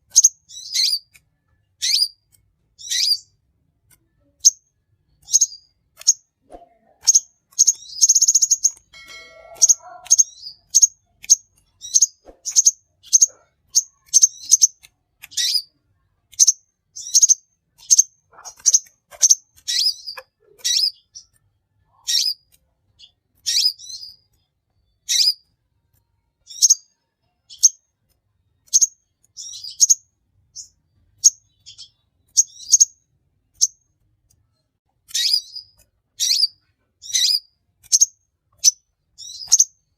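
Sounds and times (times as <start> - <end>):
small bird chirping: 0.0 - 39.9
buzzy bird trill: 0.1 - 1.2, 1.8 - 3.4, 4.2 - 25.5, 26.4 - 27.8, 28.6 - 33.8, 35.1 - 39.8.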